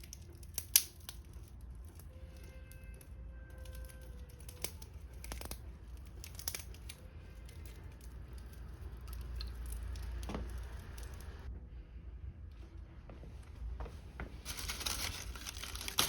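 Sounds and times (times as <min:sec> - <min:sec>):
fire crackling and popping: 0:00.0 - 0:02.1, 0:03.6 - 0:11.5
low rumble of fire: 0:00.0 - 0:16.0.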